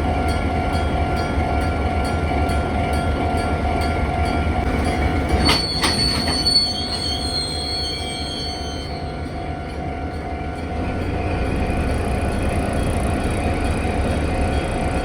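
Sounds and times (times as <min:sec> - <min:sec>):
freight train rumbling: 0:00.0 - 0:15.0
metallic clanks: 0:04.8 - 0:07.0
high wheel squeal: 0:04.8 - 0:09.2.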